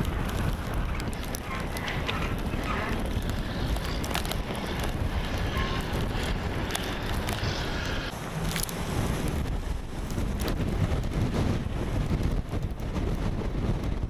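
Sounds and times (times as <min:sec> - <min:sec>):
small sharp ticks: 0:00.0 - 0:09.4
wind buffeting microphone: 0:00.0 - 0:14.0.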